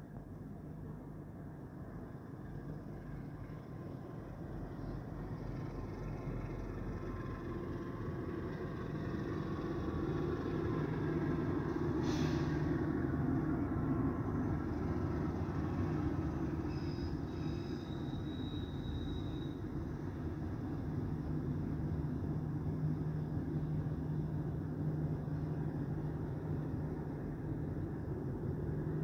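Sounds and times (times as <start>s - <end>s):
train rumble passing: 0.0s - 29.0s
brief hiss: 12.0s - 12.7s.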